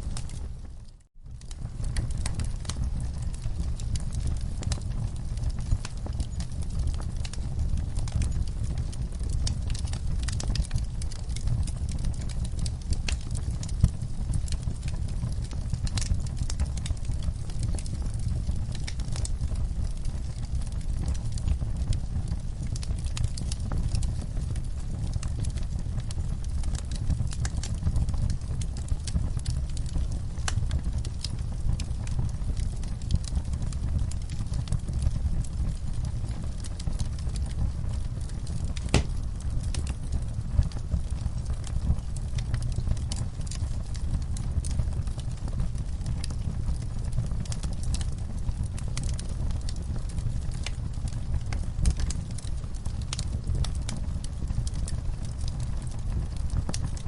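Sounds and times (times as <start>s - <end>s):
wood fire crackling and popping: 0.0s - 57.0s
fire pop: 38.6s - 40.8s.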